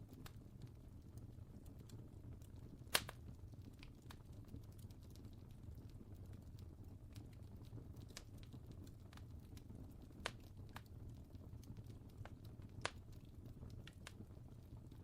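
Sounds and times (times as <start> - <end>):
low fire rumble: 0.0 - 15.0
wood fire snaps and pops: 0.0 - 15.0.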